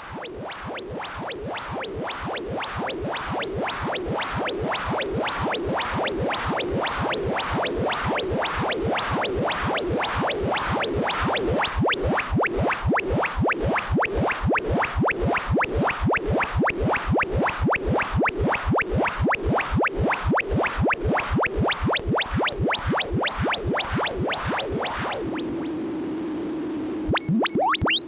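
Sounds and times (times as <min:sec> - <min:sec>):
rapid rising synth chirps: 0:16.9 - 0:25.7, 0:27.2 - 0:28.0
grainy synthetic noise: 0:27.1 - 0:28.0.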